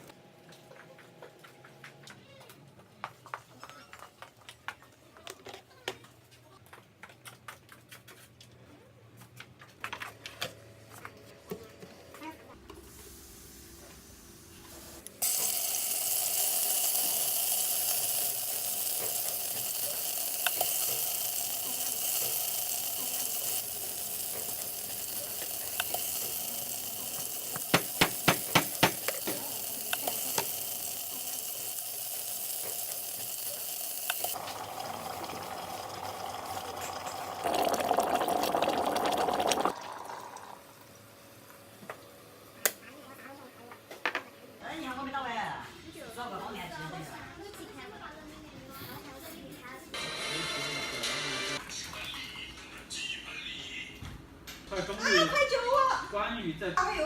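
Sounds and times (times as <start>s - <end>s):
food sizzling in hot oil: 15.2s - 40.8s.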